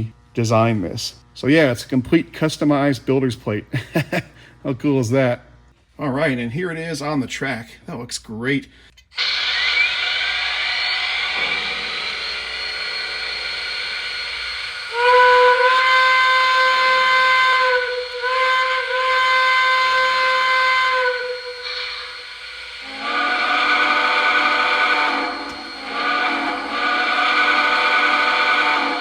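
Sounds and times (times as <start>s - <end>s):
steam whistle blasts: 9.2s - 29.0s
steady steam hiss: 9.3s - 29.0s.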